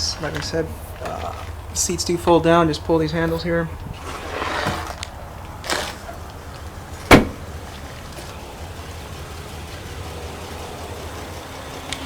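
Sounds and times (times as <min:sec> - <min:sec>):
car engine idling: 0:00.0 - 0:12.0
short scrape: 0:04.0 - 0:05.1
car door slam: 0:07.0 - 0:07.7.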